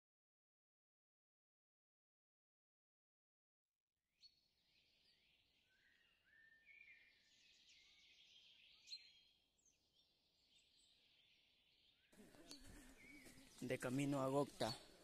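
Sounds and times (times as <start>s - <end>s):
faint bird calls: 4.8s - 15.0s.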